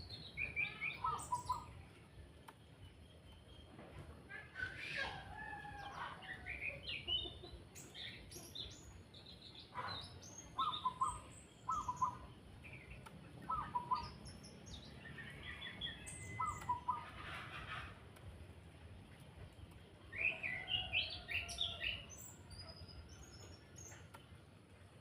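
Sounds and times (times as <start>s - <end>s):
thrush singing chirps and whistles: 16.0s - 17.0s.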